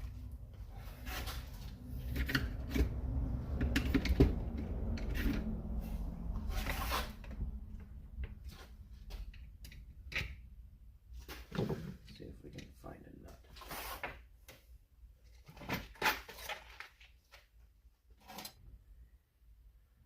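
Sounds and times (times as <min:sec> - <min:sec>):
tools and parts clicking and rustling: 0:00.1 - 0:05.8, 0:08.2 - 0:10.5.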